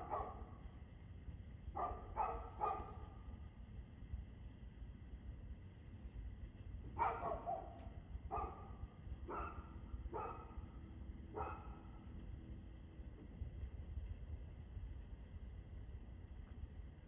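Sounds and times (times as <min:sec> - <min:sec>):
dog barking: 0:00.0 - 0:00.5, 0:01.8 - 0:03.1, 0:07.0 - 0:10.6, 0:11.3 - 0:11.8
steady low rumble: 0:00.0 - 0:17.0.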